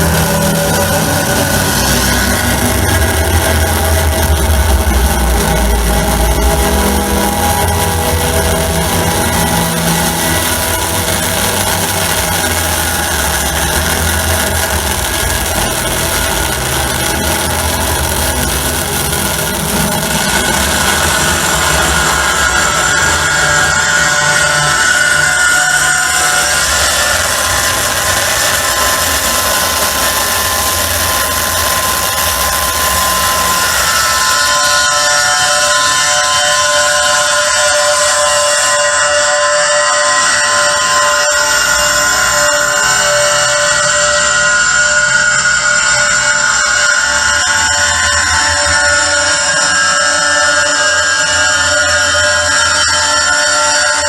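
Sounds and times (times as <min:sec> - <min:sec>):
low rumble: 0:00.0 - 0:34.3
distorted electronic noise: 0:00.0 - 0:54.0.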